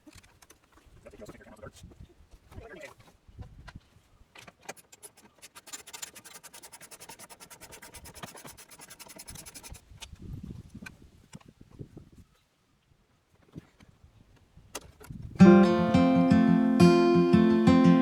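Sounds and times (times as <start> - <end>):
rapid mechanical clicking: 4.6 - 9.8.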